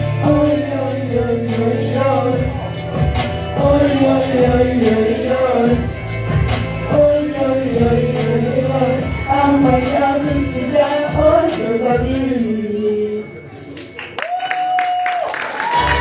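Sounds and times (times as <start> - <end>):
person singing pop song: 0.0 - 13.5
backing track with steady beat: 0.0 - 14.4.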